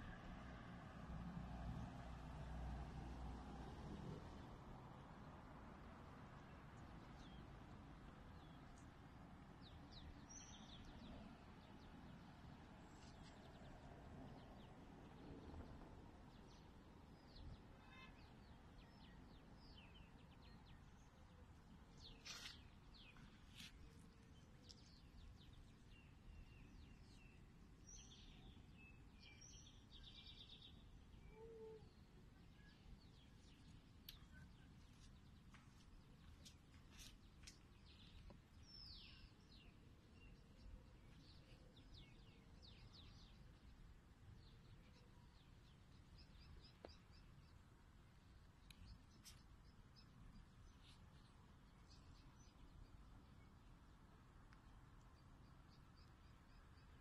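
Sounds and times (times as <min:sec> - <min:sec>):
outdoor background noise: 0:00.0 - 0:57.0
faint bird chirps: 0:31.2 - 0:34.7.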